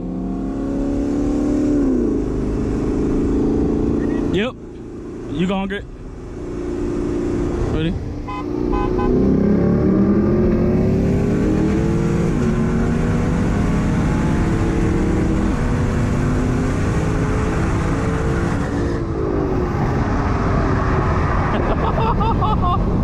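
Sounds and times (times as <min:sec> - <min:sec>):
sports car engine at full throttle: 0:00.0 - 0:23.0.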